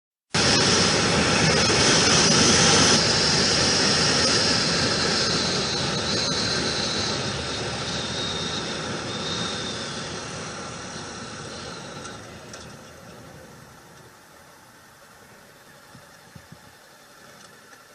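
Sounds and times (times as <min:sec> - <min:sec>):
motorcycle wind and road noise: 0:15.8 - 0:16.8.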